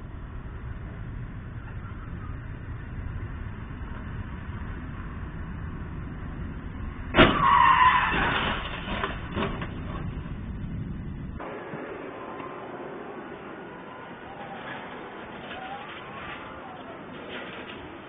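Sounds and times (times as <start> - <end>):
low background rumble: 0.0 - 17.1
tyres skidding and scraping: 3.4 - 18.0
vehicle crash: 7.0 - 11.9, 14.2 - 18.0.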